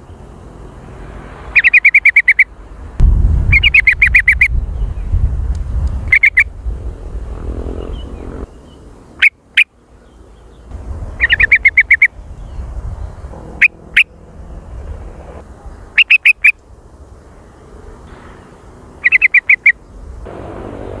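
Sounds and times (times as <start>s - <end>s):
bird calling sharp notes: 1.5s - 2.5s, 3.5s - 4.5s, 6.1s - 6.5s, 9.2s - 9.8s, 11.2s - 12.2s, 13.6s - 14.2s, 15.9s - 16.6s, 19.0s - 19.8s.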